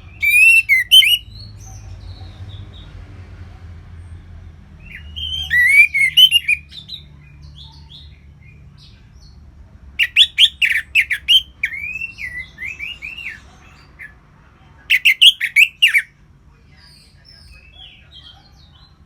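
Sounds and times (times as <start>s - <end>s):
thrush singing: 4.9s - 6.7s.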